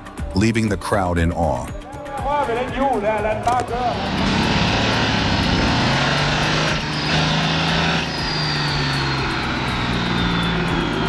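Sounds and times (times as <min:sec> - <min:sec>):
tractor engine running at high revs: 0:03.5 - 0:11.0.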